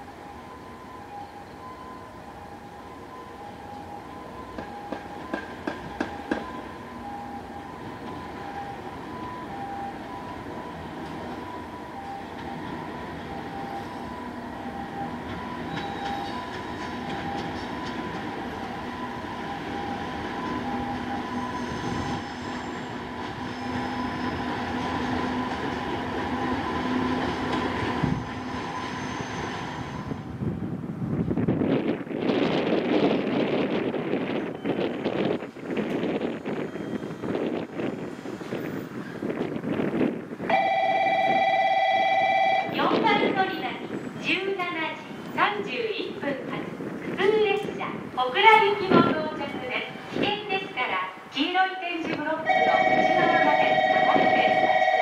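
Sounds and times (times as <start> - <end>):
train wheels clicking over rail joints: 4.5 - 6.7, 15.2 - 18.7.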